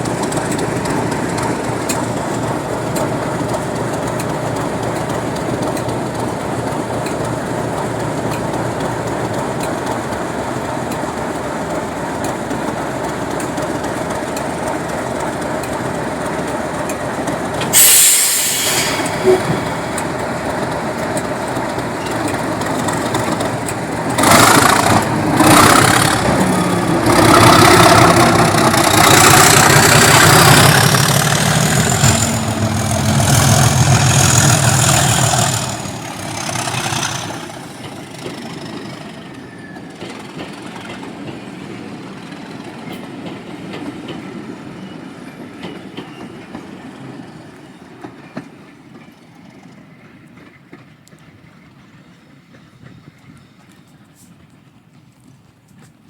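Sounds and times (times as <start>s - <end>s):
diesel train engine rumble: 0.0s - 56.0s
rail noise: 0.0s - 56.0s
sharp hiss: 17.7s - 19.5s.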